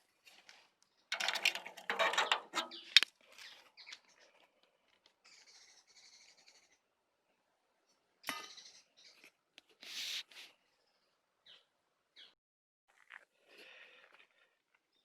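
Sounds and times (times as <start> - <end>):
faint high bird calls: 5.2 - 6.9, 8.2 - 9.3.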